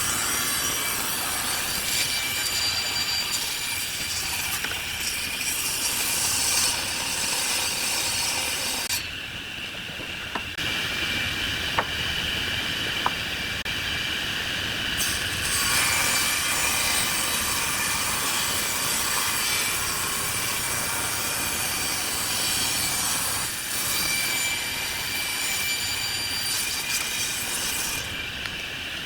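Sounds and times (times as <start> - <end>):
wood lathe tool cutting wood: 0.0 - 9.0.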